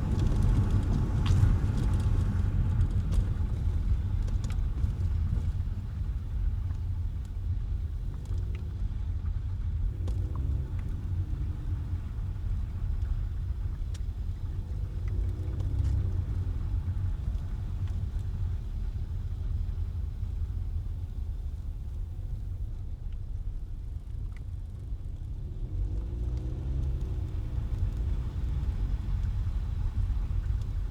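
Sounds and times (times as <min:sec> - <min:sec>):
car tyres and engine rumble: 0:00.0 - 0:30.9
faint ticks: 0:09.9 - 0:19.6.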